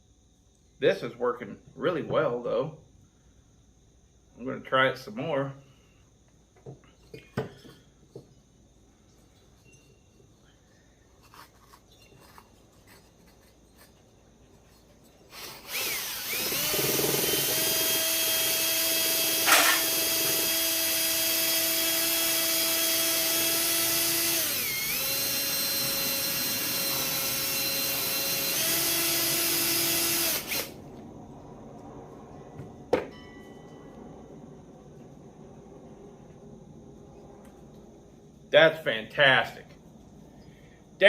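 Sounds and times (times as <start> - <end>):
electric rotary tool running: 15.4 - 30.8.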